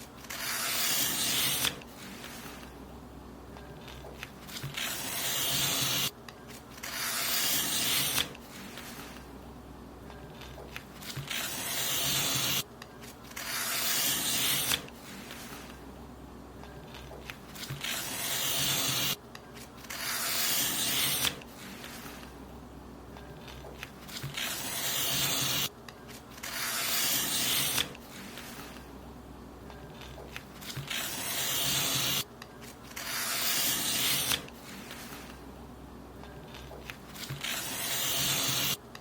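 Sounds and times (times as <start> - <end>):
paper being cut: 0.0 - 2.7, 3.8 - 6.1, 6.7 - 9.2, 10.4 - 12.6, 13.3 - 15.7, 16.9 - 19.2, 19.8 - 22.2, 23.4 - 25.7, 26.3 - 28.8, 30.0 - 35.4, 36.5 - 38.8.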